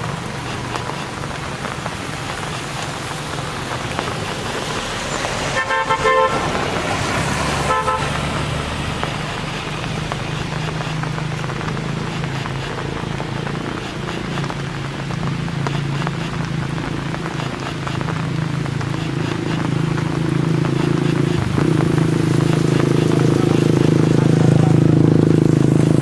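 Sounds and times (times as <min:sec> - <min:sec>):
engine running: 0:00.0 - 0:26.0
steady rain: 0:00.0 - 0:26.0
vehicle horn honking: 0:05.5 - 0:06.5, 0:07.6 - 0:08.2.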